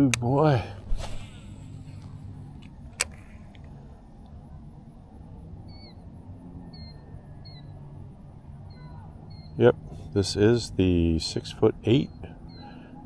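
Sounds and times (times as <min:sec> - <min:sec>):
high bird chirps: 0:05.7 - 0:06.0, 0:06.7 - 0:07.8, 0:08.7 - 0:09.6, 0:12.0 - 0:13.0.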